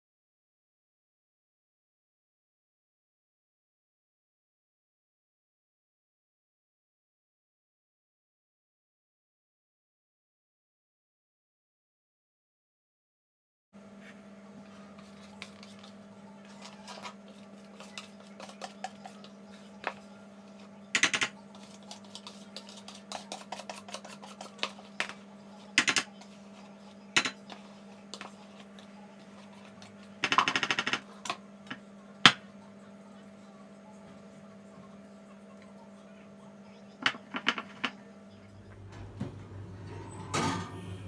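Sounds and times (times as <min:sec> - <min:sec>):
utensils and dishes clinking: 0:15.0 - 0:31.4, 0:38.6 - 0:41.0.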